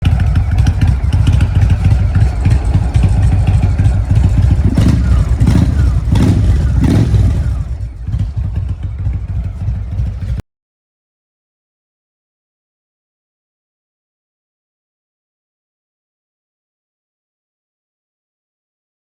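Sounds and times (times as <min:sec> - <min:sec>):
motorcycle engine idling and revving: 0:00.0 - 0:10.4.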